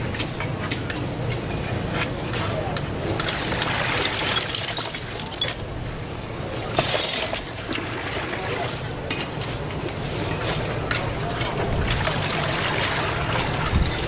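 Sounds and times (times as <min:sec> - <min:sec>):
low background noise: 0:00.0 - 0:14.0
small hard objects clinking: 0:04.0 - 0:05.7, 0:06.7 - 0:07.7.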